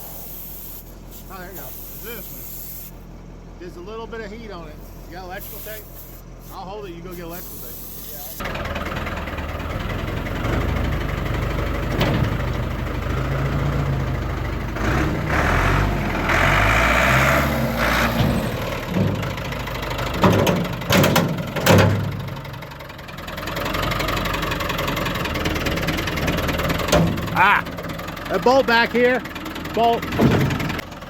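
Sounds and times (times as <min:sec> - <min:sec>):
hiss: 0:00.0 - 0:03.0, 0:04.8 - 0:06.6, 0:07.2 - 0:08.4
truck engine idling: 0:00.0 - 0:31.0
sharp knocks: 0:20.2 - 0:22.2.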